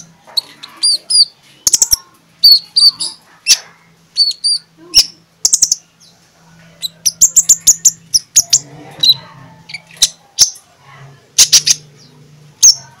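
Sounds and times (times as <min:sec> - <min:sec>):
sunbird high chirps: 0:00.0 - 0:06.0, 0:06.8 - 0:10.6.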